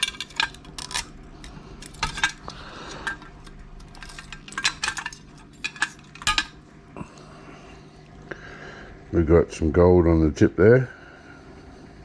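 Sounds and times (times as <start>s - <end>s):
metal parts clinking: 0.0s - 6.6s.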